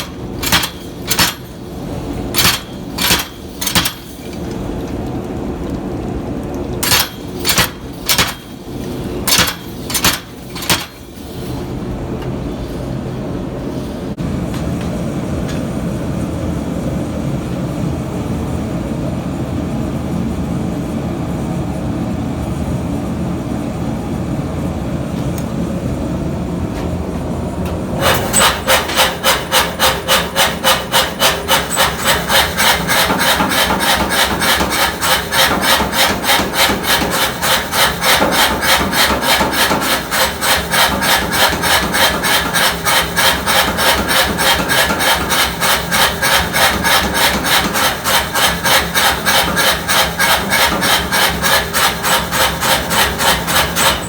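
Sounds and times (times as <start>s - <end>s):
hand tool rasping on steel: 28.0s - 54.0s.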